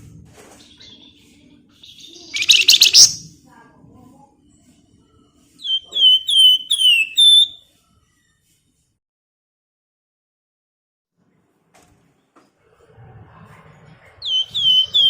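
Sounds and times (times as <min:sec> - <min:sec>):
songbird chattering trill: 0:02.0 - 0:03.2, 0:05.6 - 0:07.6, 0:14.2 - 0:15.0
bird whistling descending notes: 0:02.3 - 0:03.2, 0:05.6 - 0:07.6, 0:14.2 - 0:15.0.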